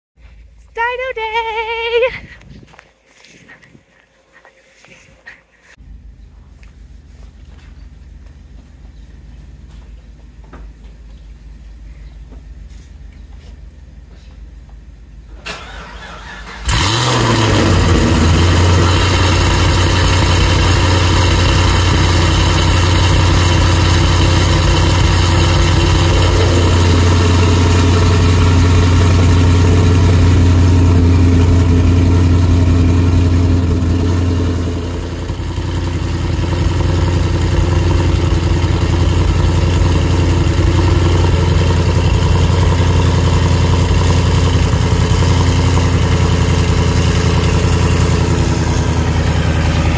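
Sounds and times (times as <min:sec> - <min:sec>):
car engine starting and idling: 0:15.2 - 0:49.9.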